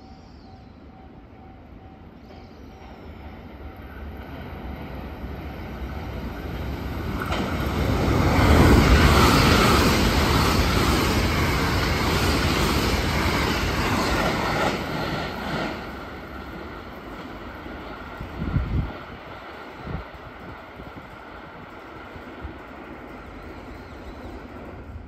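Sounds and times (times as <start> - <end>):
electric train passing at speed: 0.0 - 25.0
rail clatter: 6.4 - 17.5.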